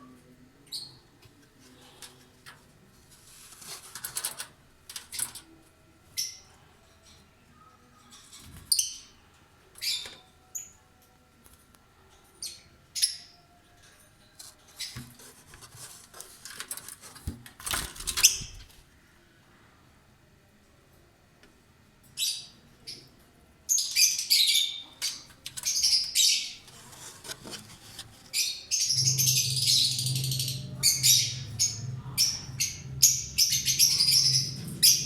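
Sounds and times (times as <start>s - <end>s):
rustling: 14.4s - 18.8s, 25.4s - 28.5s
lovebirds chirping: 27.9s - 35.0s.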